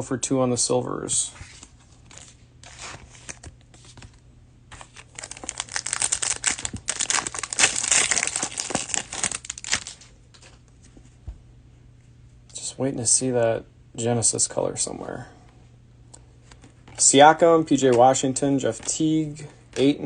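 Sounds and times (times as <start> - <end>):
plastic wrapper crinkling: 4.7 - 10.6.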